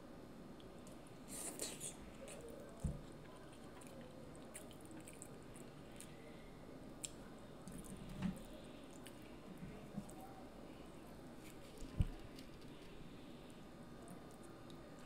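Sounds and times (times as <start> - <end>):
wet chewing: 2.2 - 6.3.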